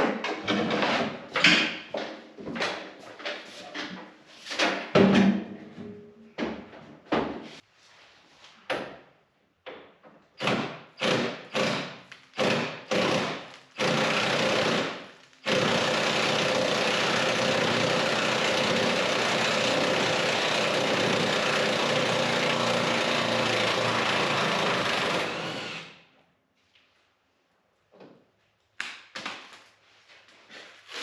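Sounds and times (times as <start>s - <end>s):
power tool running: 12.4s - 26.0s.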